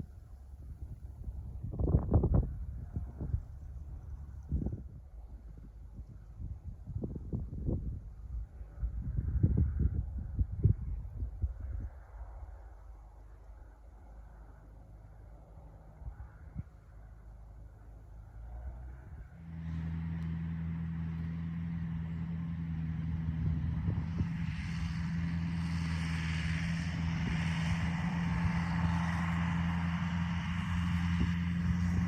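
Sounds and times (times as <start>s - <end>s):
tractor engine running: 19.4s - 32.0s.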